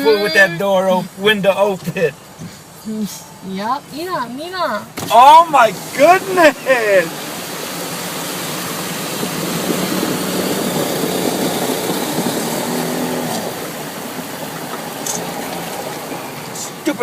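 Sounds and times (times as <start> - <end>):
car engine: 0.0 - 17.0
road noise: 0.0 - 17.0
rush of water: 5.0 - 17.0.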